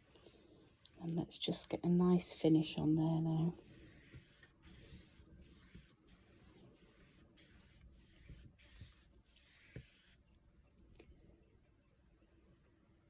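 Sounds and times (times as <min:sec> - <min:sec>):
paintbrush swishing on paper: 0:00.0 - 0:01.2, 0:03.6 - 0:10.2.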